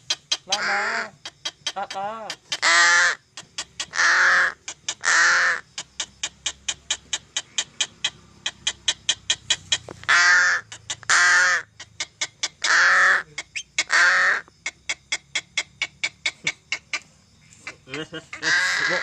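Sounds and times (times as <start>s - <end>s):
crow cawing: 0.5s - 1.1s, 2.5s - 3.2s, 3.9s - 5.7s, 10.0s - 11.7s, 12.6s - 14.5s, 18.3s - 19.0s.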